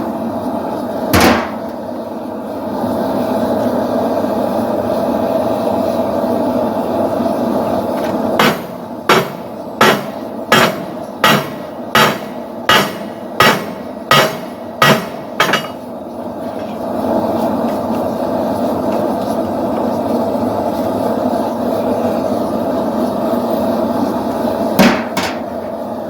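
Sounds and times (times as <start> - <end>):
hammer striking steel on anvil: 1.2 - 1.8, 8.4 - 15.8, 24.8 - 25.5.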